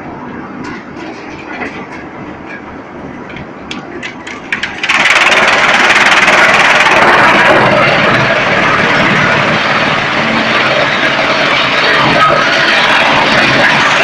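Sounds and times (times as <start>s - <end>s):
loud dense rushing noise: 0.0s - 14.0s
wood chipper running: 4.0s - 14.0s.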